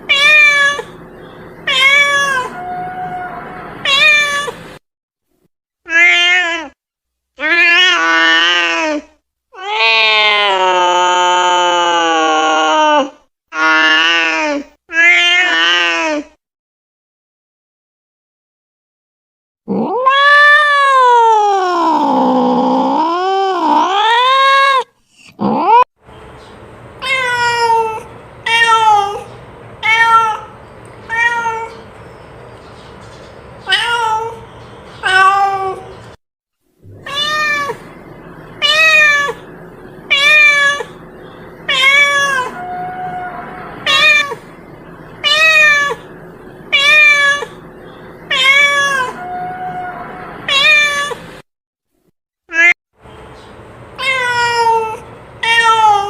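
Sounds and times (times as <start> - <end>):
cat meowing: 0.1 - 1.0, 1.7 - 4.6, 5.9 - 6.8, 7.4 - 9.0, 9.6 - 14.3, 14.9 - 16.2, 19.7 - 22.5, 27.0 - 31.8, 33.6 - 34.4, 35.0 - 35.9, 36.9 - 38.0, 38.6 - 39.5, 40.1 - 41.0, 41.7 - 44.5, 45.2 - 46.1, 46.7 - 47.6, 48.3 - 51.3, 54.0 - 56.0.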